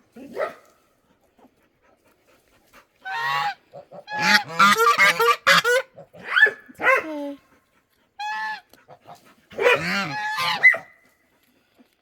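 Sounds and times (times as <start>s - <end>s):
geese honking: 3.0s - 5.9s, 9.6s - 10.7s.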